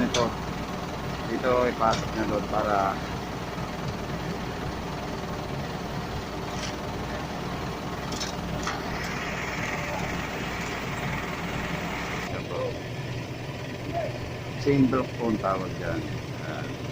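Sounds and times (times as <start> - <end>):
engine idling: 0.0 - 16.9
high hiss: 8.6 - 12.3.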